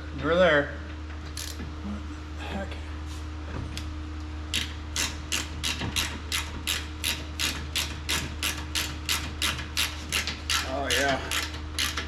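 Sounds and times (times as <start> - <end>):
low shop hum: 0.0 - 12.0
socket ratchet clicking: 1.4 - 1.6, 4.6 - 12.0.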